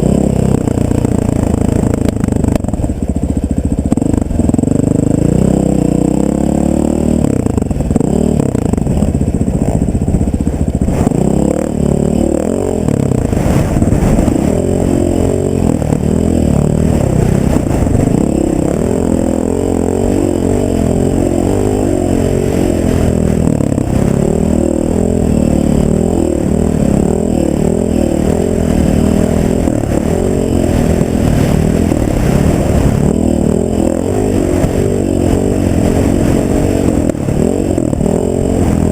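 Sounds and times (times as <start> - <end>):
off-road vehicle engine revving: 0.0 - 38.9.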